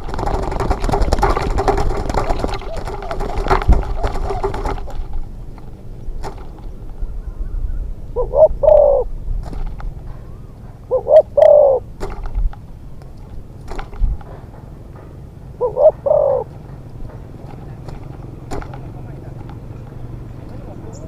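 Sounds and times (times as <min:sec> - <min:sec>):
dove cooing: 0:00.0 - 0:05.4, 0:06.7 - 0:09.2, 0:09.9 - 0:12.0, 0:15.5 - 0:19.4.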